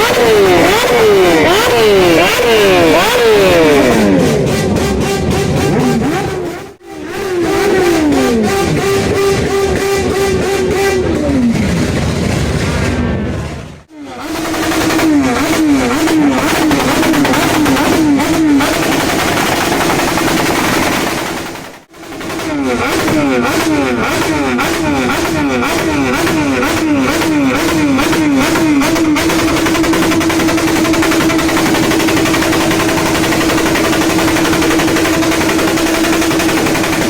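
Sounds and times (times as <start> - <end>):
rising and falling pitched tone: 0.0 - 20.4
motorcycles running: 0.0 - 37.0
sharp exhaust crackles: 0.0 - 37.0.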